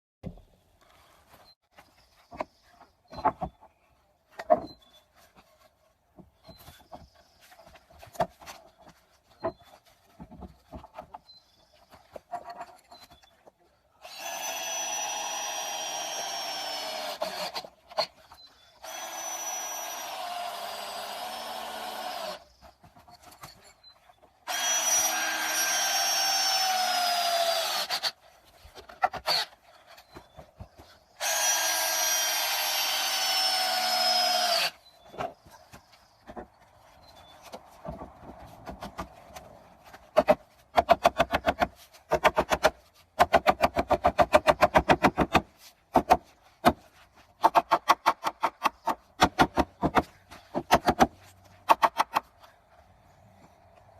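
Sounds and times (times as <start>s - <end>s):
power tool running: 18.8s - 22.4s, 24.5s - 28.1s, 31.2s - 34.8s.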